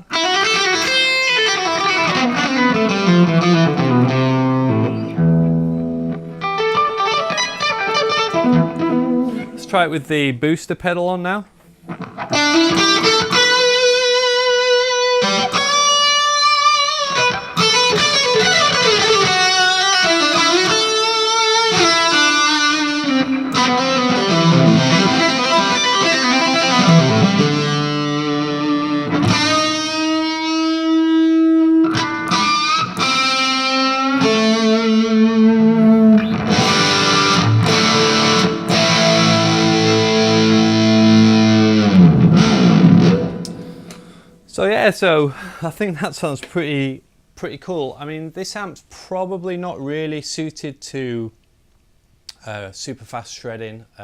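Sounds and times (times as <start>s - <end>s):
overdriven electric guitar lead: 0.0s - 9.7s, 11.8s - 44.4s.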